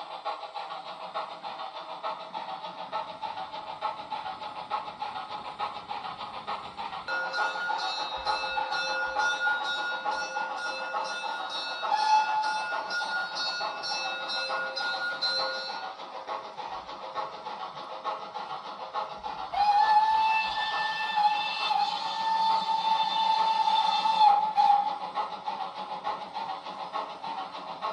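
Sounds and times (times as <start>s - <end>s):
model train steam chuffing: 0.0s - 27.9s
steam whistle: 11.4s - 13.5s, 19.5s - 25.0s.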